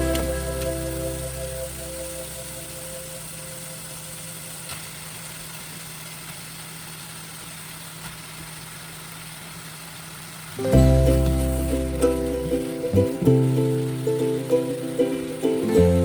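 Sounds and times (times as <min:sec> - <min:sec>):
background music: 0:00.0 - 0:03.3, 0:10.6 - 0:16.0
light hiss: 0:00.0 - 0:16.0
low mechanical hum: 0:00.0 - 0:16.0.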